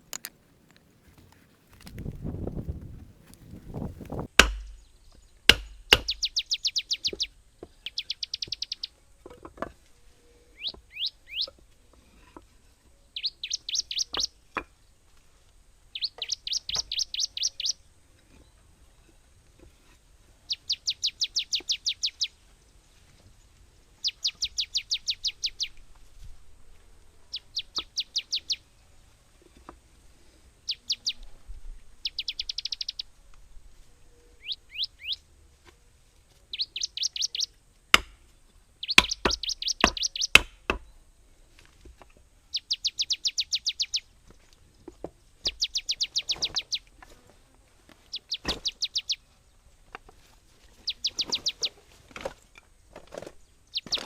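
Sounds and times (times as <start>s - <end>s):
sharp knocks: 4.3s - 4.8s, 5.5s - 6.2s, 38.0s - 38.2s, 39.0s - 40.9s
bird singing fast chirps: 4.6s - 9.0s, 10.6s - 11.5s, 13.2s - 14.4s, 15.9s - 17.8s, 20.5s - 22.4s, 24.0s - 25.8s, 27.3s - 28.7s, 30.7s - 31.2s, 32.0s - 33.1s, 34.4s - 35.2s, 36.5s - 37.5s, 38.8s - 40.4s, 42.5s - 44.1s, 45.4s - 46.8s, 48.1s - 49.2s, 50.8s - 51.8s.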